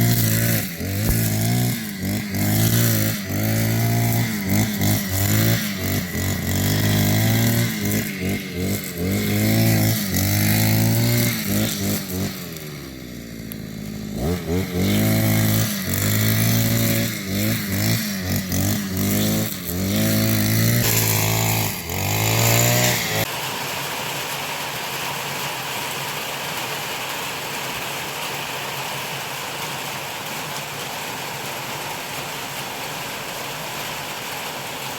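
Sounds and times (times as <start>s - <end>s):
lawn mower engine revving: 0.0s - 24.7s
steady rain hiss: 20.8s - 34.9s.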